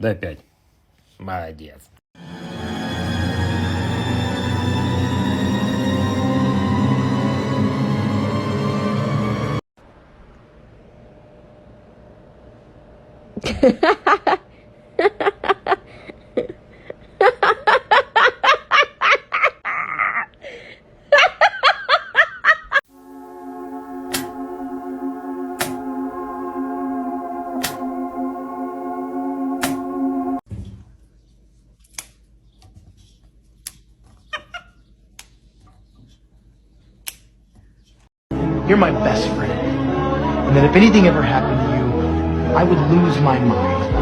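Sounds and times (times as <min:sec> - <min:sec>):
person laughing hard: 0:13.4 - 0:20.4, 0:21.1 - 0:22.8.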